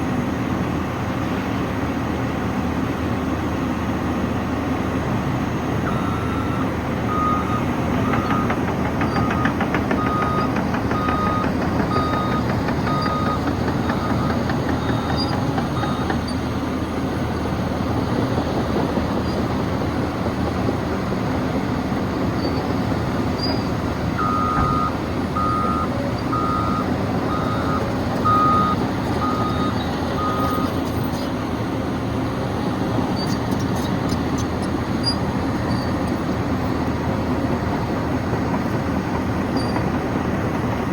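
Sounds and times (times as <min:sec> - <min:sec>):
track loader engine running: 0:00.0 - 0:40.9
reversing alarm beeps: 0:05.9 - 0:17.0, 0:24.2 - 0:30.8.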